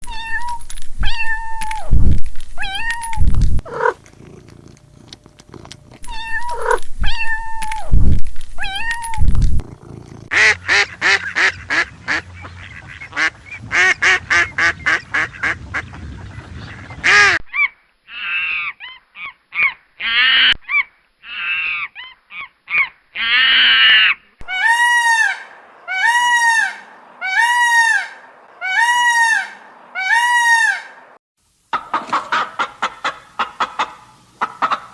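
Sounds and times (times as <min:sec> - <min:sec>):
animal calls: 0:02.6 - 0:08.0, 0:17.5 - 0:31.2.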